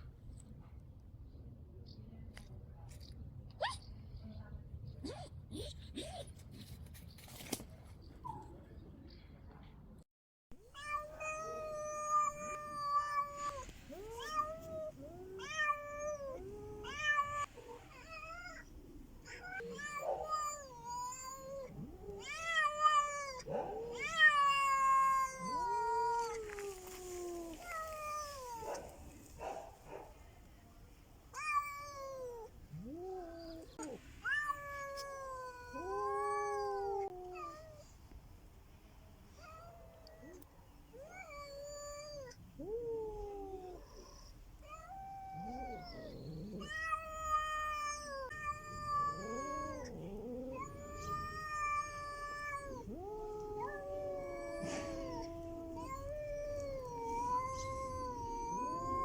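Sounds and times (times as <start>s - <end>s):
cats yowling: 10.7s - 30.0s, 31.3s - 37.9s, 39.4s - 59.0s.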